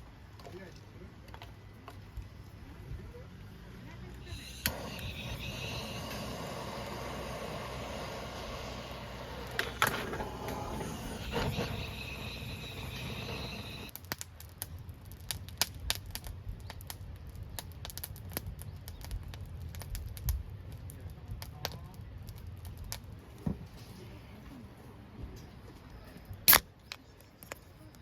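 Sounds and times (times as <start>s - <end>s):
firewood crackling: 4.1s - 24.4s
steady hiss: 4.2s - 13.9s.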